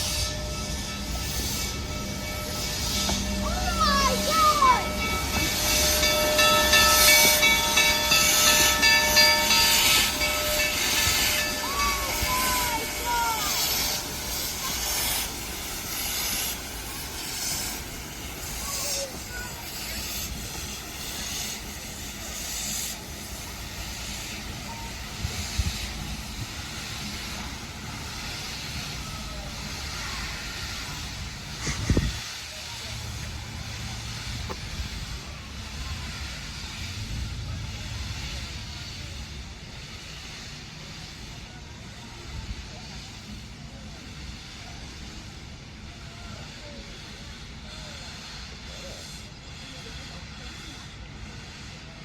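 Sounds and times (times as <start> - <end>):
steam locomotive hissing: 0.0 - 52.0
low rumble: 32.8 - 40.1.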